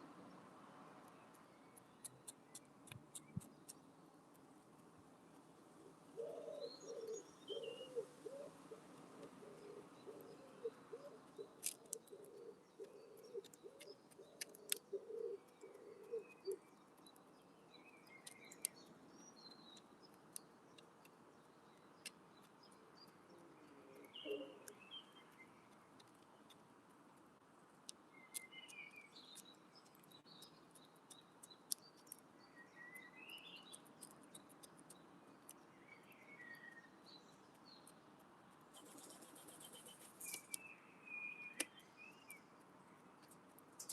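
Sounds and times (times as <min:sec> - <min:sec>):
small birds chirping: 0:01.0 - 0:43.9
wood pigeon cooing: 0:06.2 - 0:16.6, 0:23.4 - 0:24.8.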